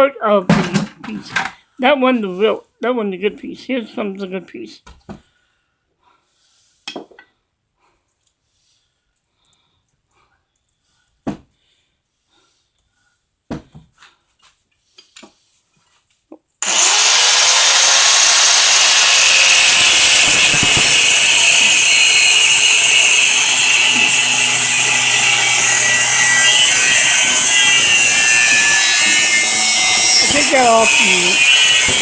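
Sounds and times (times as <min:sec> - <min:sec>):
power tool cutting: 0:16.6 - 0:32.0.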